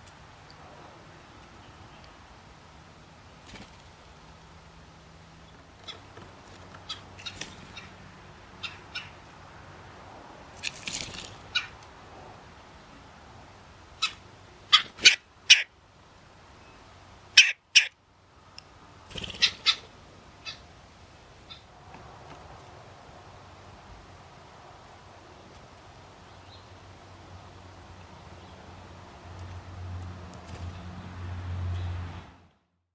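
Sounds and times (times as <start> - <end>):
blue jays calling: 0.0 - 12.0, 13.6 - 15.8, 16.5 - 18.0, 18.9 - 22.4
woodpeckers calling: 5.4 - 9.4, 11.4 - 11.9, 14.0 - 15.8, 17.4 - 18.0, 19.1 - 21.7.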